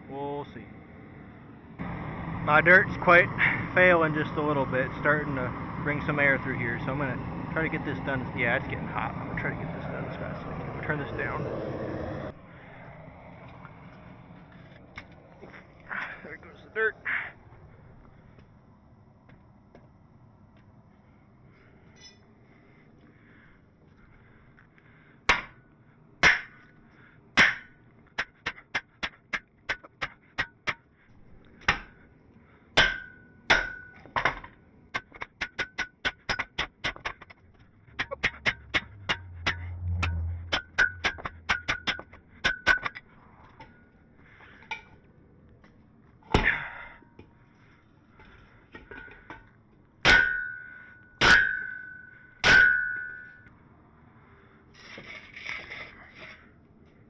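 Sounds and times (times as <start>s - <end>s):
low hum: 0.0s - 22.8s, 37.2s - 49.5s
hammer striking steel: 25.3s - 25.6s, 26.2s - 26.6s, 27.4s - 30.9s, 32.8s - 34.1s, 35.0s - 37.3s, 38.0s - 43.0s, 50.0s - 53.5s.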